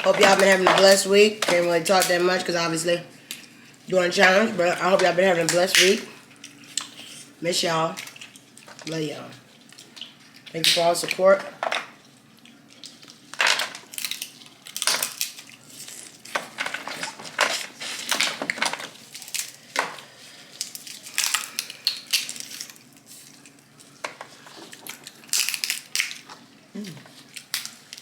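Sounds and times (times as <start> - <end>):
crab shells cracking: 12.5 - 26.4, 27.1 - 28.0.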